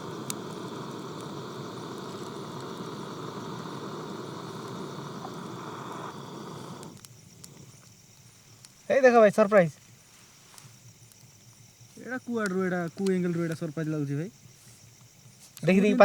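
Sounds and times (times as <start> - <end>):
handheld blower whirring: 0.0 - 7.0.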